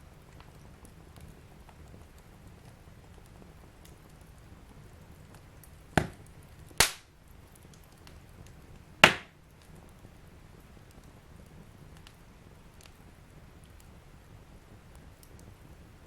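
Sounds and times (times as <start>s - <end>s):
fire crackling: 0.0s - 16.0s
logs popping: 5.3s - 9.9s.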